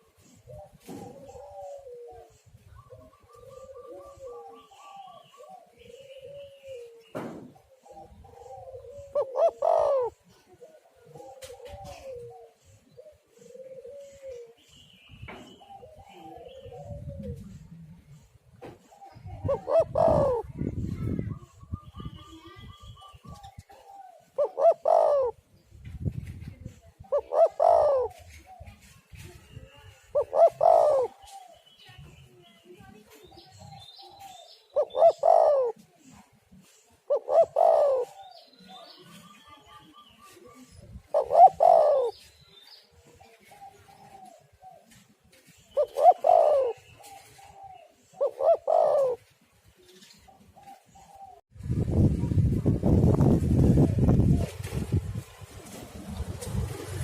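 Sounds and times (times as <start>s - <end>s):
dove cooing: 0.0s - 14.7s, 15.5s - 32.1s, 33.0s - 51.4s, 53.6s - 57.0s
small birds chirping: 0.0s - 51.5s.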